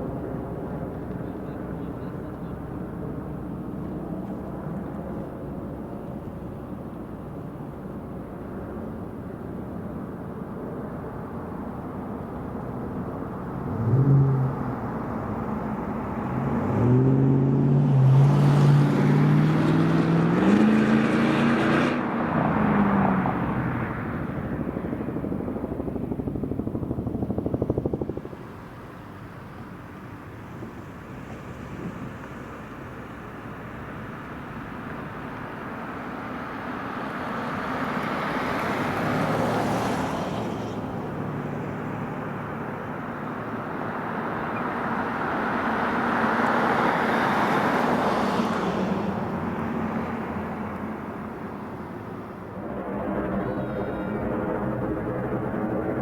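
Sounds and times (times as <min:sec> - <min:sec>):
engine running: 0:00.0 - 0:56.0
steady background rush: 0:49.1 - 0:56.0.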